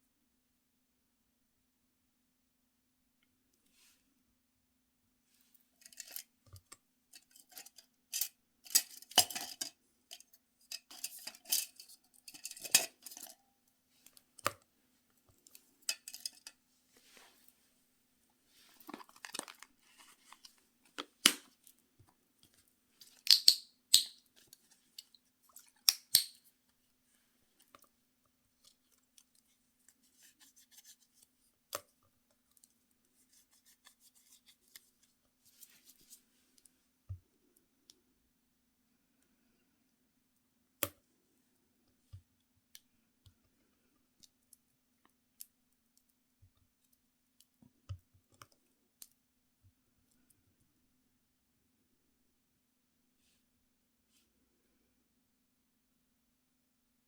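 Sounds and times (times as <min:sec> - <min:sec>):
scraping of small items: 0:05.4 - 0:06.3, 0:07.2 - 0:13.4, 0:15.4 - 0:17.5, 0:18.5 - 0:21.6.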